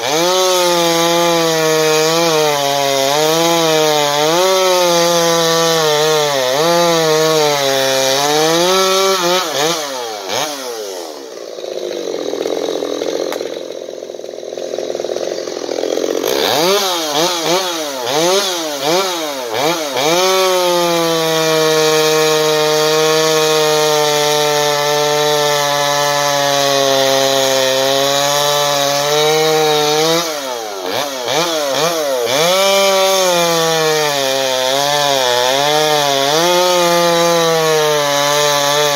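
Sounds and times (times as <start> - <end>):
chainsaw revving: 0.0 - 38.9.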